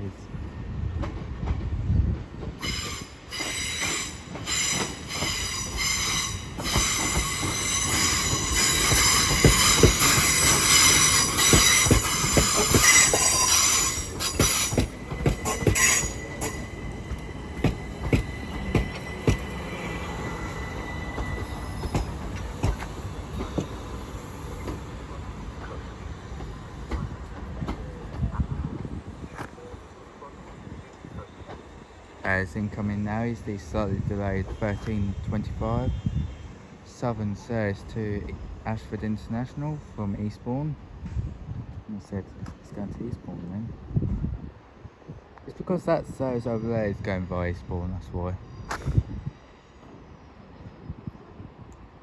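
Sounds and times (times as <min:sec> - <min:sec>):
train low rumble: 0:00.0 - 0:52.0
train wheels squealing: 0:02.5 - 0:28.2, 0:33.6 - 0:36.8.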